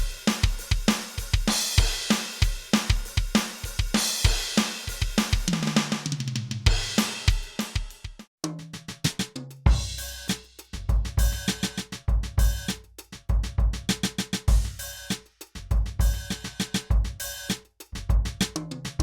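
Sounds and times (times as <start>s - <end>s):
electronic drum kit groove: 0.0s - 19.0s
deep booming kick drum: 6.7s - 8.2s, 9.7s - 10.1s, 10.8s - 12.7s, 13.3s - 13.9s, 14.5s - 14.9s, 15.6s - 17.2s, 18.0s - 18.4s.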